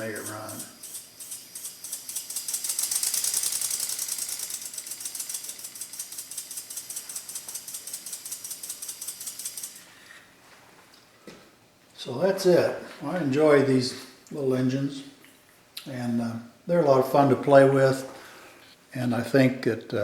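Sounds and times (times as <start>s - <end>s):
mechanical clicking: 0.0s - 9.8s.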